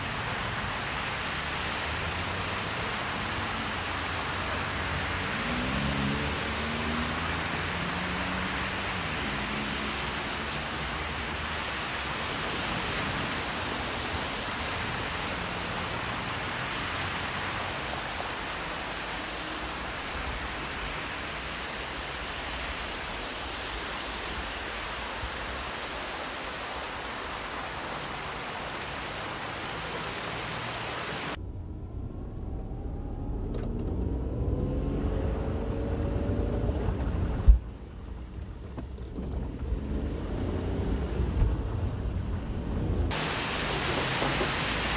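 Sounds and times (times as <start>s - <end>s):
vehicle engine: 0.0s - 13.1s, 29.0s - 44.9s
heavy rain hissing: 0.0s - 31.4s, 43.1s - 44.9s
running water: 0.0s - 31.4s, 43.1s - 44.9s.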